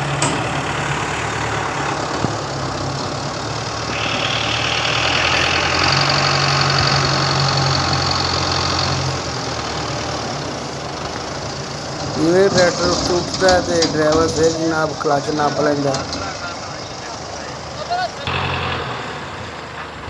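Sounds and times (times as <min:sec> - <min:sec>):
tractor engine under heavy load: 0:00.0 - 0:20.0.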